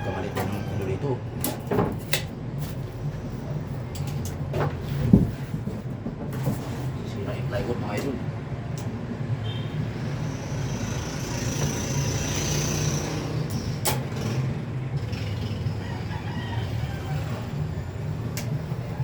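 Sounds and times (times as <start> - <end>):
rooster crowing: 0.0 - 1.1, 15.6 - 18.0.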